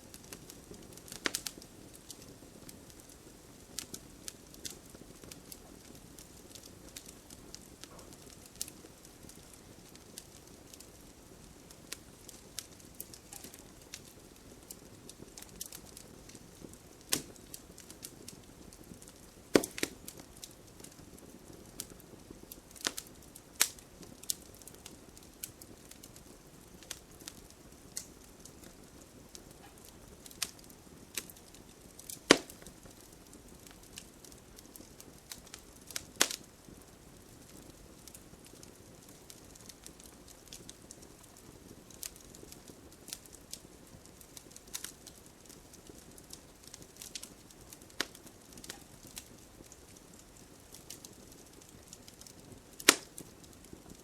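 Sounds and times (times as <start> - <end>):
campfire wood crackling and popping: 0.0 - 54.0.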